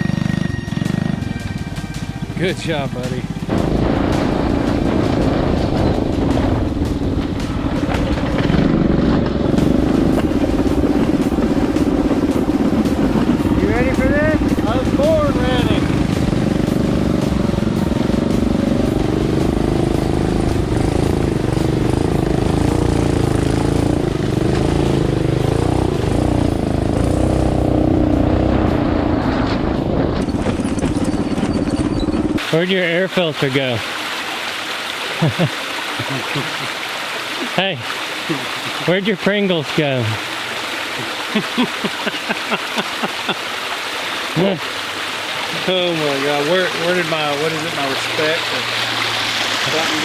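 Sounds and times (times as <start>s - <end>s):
small engine pulsing: 0.0s - 32.4s.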